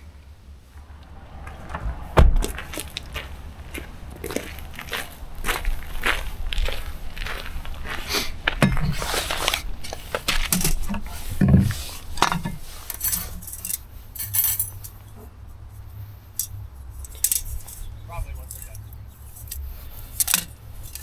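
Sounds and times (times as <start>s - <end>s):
metal cookware clinking: 10.5s - 15.3s, 16.3s - 21.0s.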